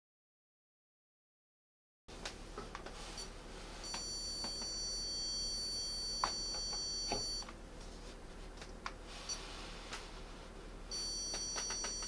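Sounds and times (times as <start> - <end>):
stud finder beeping: 3.2 - 7.5, 10.9 - 12.0.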